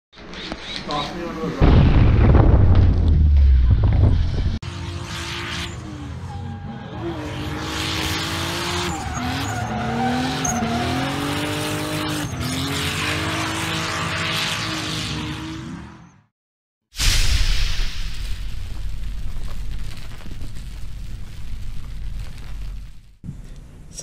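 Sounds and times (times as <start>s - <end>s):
car engine revving: 3.4s - 16.2s
tyre squeal: 5.7s - 7.3s, 8.7s - 11.3s.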